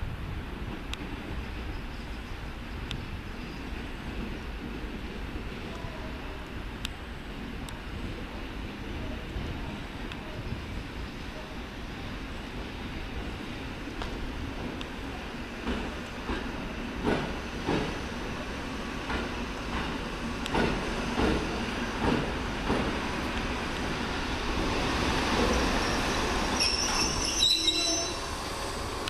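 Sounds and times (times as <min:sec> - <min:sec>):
high-pitched wheel squeal: 0:25.8 - 0:28.2.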